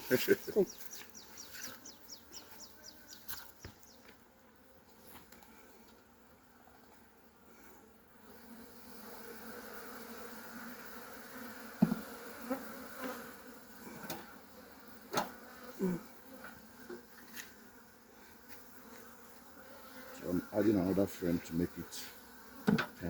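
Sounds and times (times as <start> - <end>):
honeybees buzzing: 0.0 - 23.0
wooden knocks and bumps: 11.8 - 12.0, 22.7 - 22.9.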